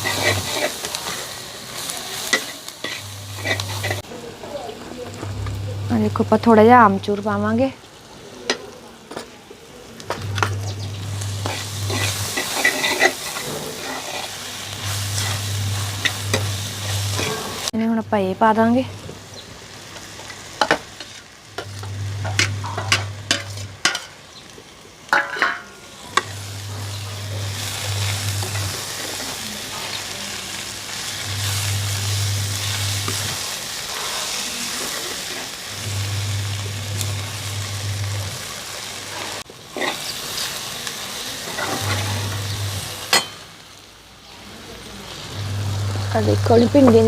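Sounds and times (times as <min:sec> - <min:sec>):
spoon scraping a pan: 0:00.0 - 0:01.4, 0:02.1 - 0:04.0, 0:10.3 - 0:17.7, 0:20.6 - 0:24.2, 0:39.1 - 0:40.5, 0:41.5 - 0:43.4
vegetables sizzling in a pan: 0:00.0 - 0:47.0
low hum: 0:03.0 - 0:04.0, 0:10.2 - 0:12.5, 0:14.7 - 0:19.0, 0:21.6 - 0:23.8, 0:26.2 - 0:28.8, 0:31.2 - 0:33.4, 0:35.8 - 0:38.5, 0:41.8 - 0:42.9, 0:45.3 - 0:47.0.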